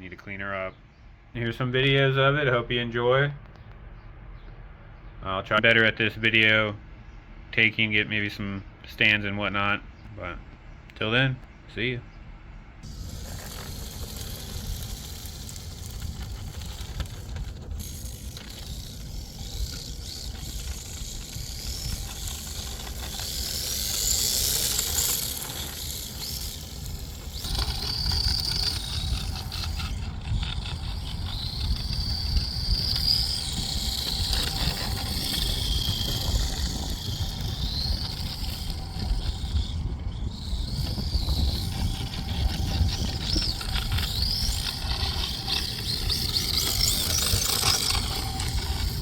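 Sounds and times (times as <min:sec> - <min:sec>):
rc car motor whine: 0:12.8 - 0:49.0.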